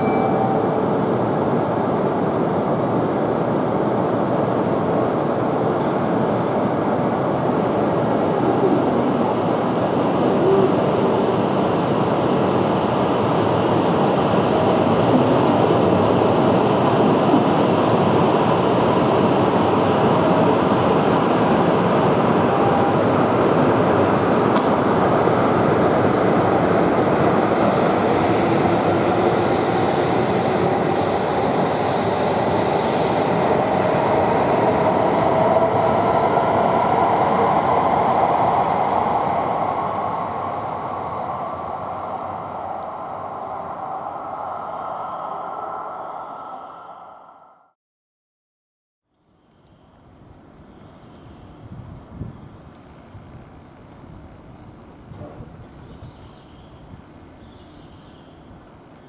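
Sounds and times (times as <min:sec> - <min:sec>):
train running noise: 0:00.0 - 0:47.6
train motor whine: 0:27.6 - 0:47.6.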